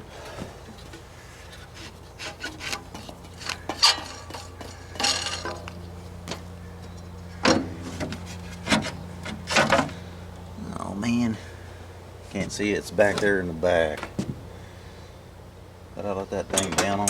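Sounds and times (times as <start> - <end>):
scraping and rubbing against mower: 0.7 - 10.1.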